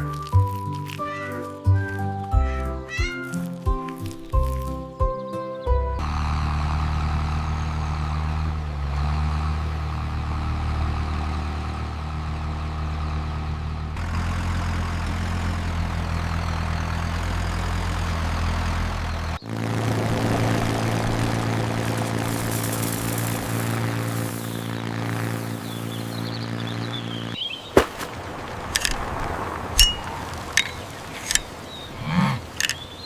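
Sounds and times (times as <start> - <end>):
low mechanical drone: 6.0 - 27.4.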